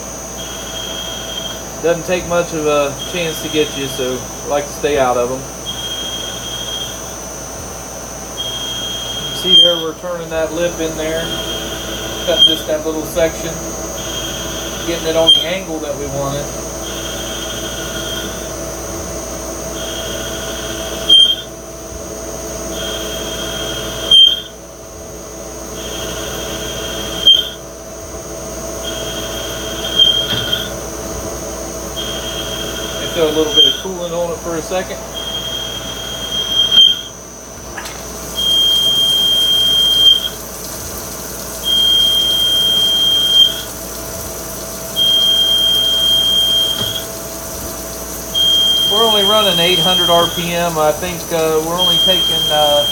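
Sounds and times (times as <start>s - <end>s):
lathe machine whine: 0.0s - 52.9s
cutting tool squeal and screech: 32.0s - 34.2s, 51.4s - 52.9s.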